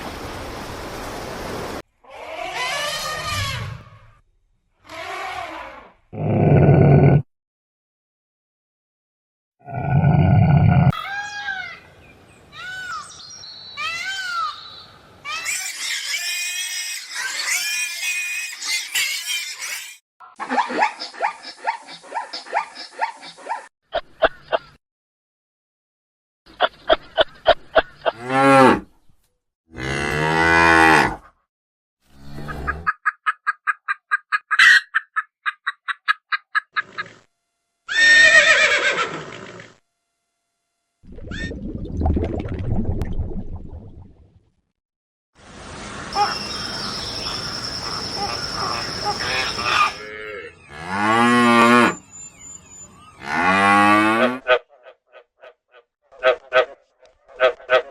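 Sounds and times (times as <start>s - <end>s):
animal squeals and chirps: 2.1s - 3.9s, 15.3s - 20.0s, 46.2s - 50.7s, 51.9s - 53.3s.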